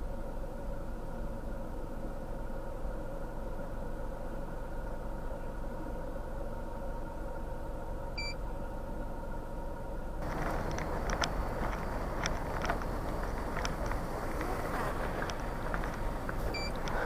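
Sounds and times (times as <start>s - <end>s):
vehicle engine idling: 0.0s - 17.0s
short electronic beep: 16.5s - 16.8s.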